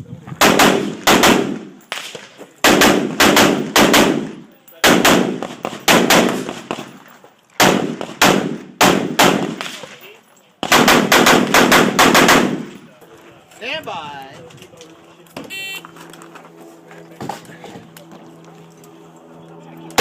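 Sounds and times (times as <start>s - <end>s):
rifle shots: 0.4s - 6.9s, 7.6s - 9.8s, 10.6s - 12.8s.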